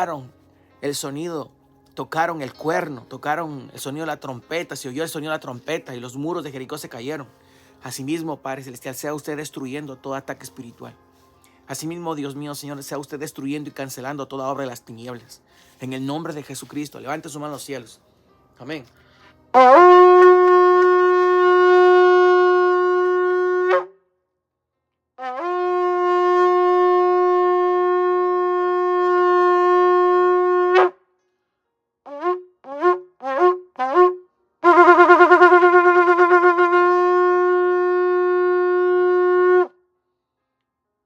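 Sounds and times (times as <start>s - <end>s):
shofar blasts: 19.6s - 24.0s, 25.2s - 31.0s, 32.1s - 39.7s.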